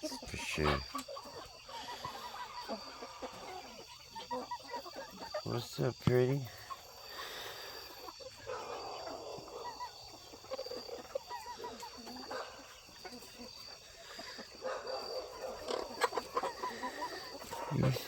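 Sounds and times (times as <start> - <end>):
high buzz of insects: 0.0 - 8.7
chickens clucking: 0.0 - 18.0.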